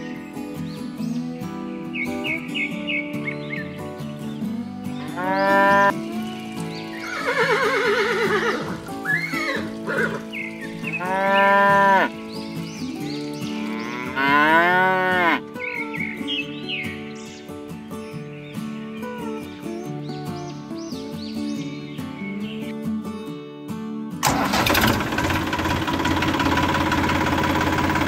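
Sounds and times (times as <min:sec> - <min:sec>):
background music: 0:00.0 - 0:24.9
cattle mooing: 0:05.0 - 0:05.9, 0:10.9 - 0:12.2, 0:13.5 - 0:15.5.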